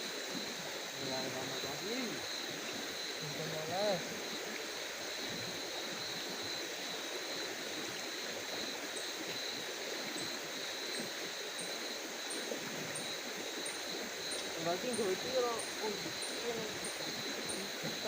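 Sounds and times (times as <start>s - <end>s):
night ambience hiss: 0.0s - 18.0s.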